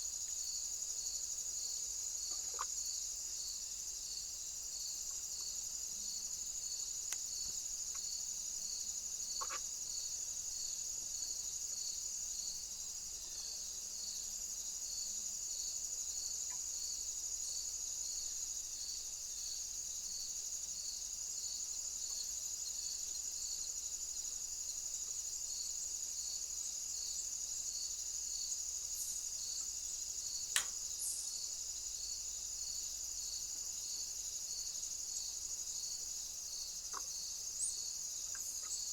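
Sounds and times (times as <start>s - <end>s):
crickets trilling: 0.0s - 38.9s
insect chirping in pulses: 0.0s - 38.9s
sharp click: 30.5s - 30.8s.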